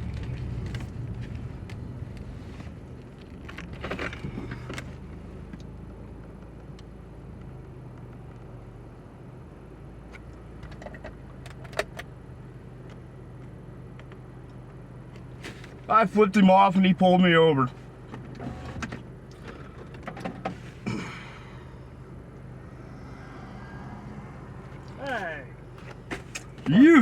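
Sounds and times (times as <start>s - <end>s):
car engine idling: 9.5s - 27.0s.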